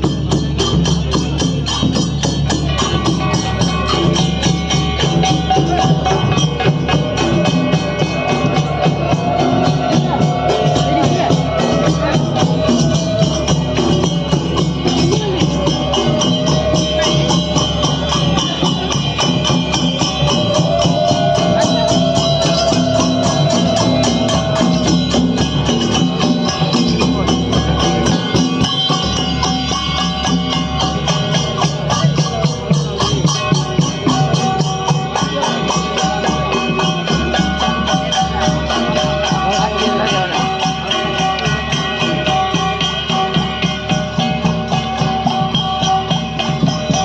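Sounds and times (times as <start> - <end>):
fast jingling percussion: 0.0 - 47.0
wavering melody: 0.6 - 47.0.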